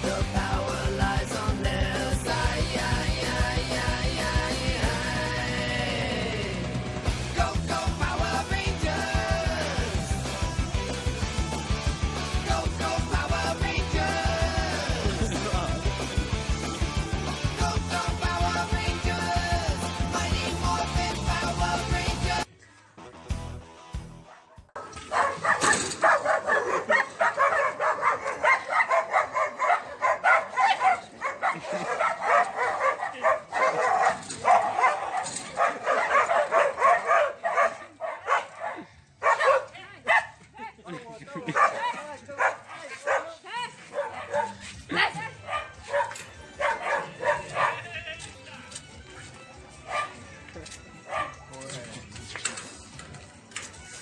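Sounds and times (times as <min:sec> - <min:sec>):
driving drum beat: 0:00.0 - 0:22.4
fast rock music: 0:00.0 - 0:22.5
dog barking: 0:24.3 - 0:40.4, 0:41.5 - 0:47.9, 0:49.8 - 0:50.3, 0:51.1 - 0:51.4.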